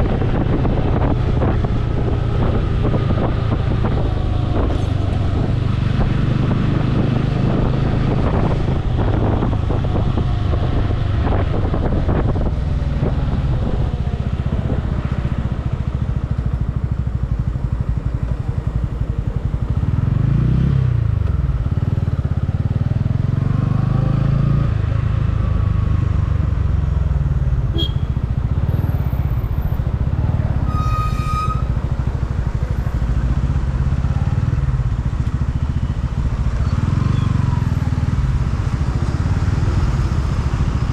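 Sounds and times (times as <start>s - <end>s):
motorcycle engine running: 0.0s - 24.2s, 31.6s - 40.9s
road and wind noise: 0.0s - 40.9s
vehicle horn: 27.7s - 28.2s, 30.6s - 31.8s.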